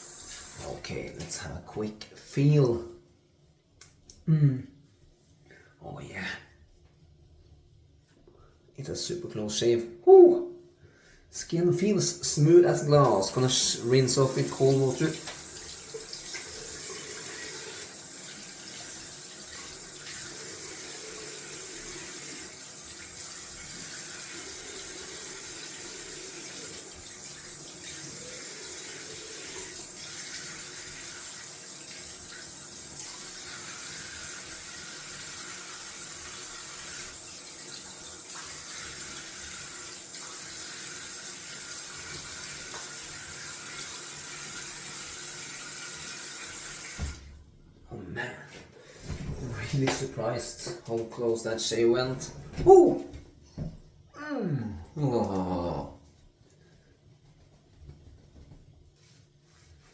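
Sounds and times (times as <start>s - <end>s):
tap water running into sink: 0.0s - 1.4s, 12.2s - 47.4s.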